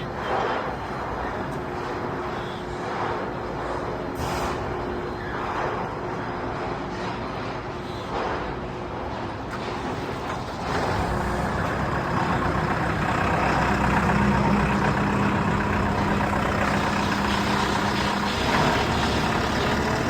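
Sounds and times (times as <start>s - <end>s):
diesel engine running: 9.5s - 20.0s.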